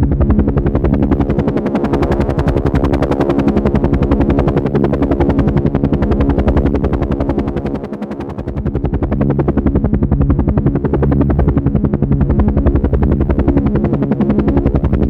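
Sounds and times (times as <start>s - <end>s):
helicopter engine drone: 0.0s - 15.0s
helicopter rotor chop: 0.0s - 15.0s.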